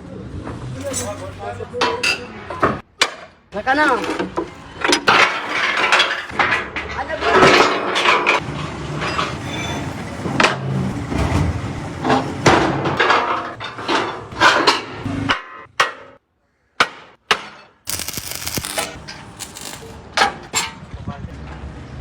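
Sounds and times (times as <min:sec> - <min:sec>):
tools clanking: 0:00.8 - 0:02.3, 0:03.7 - 0:06.4, 0:17.9 - 0:20.8.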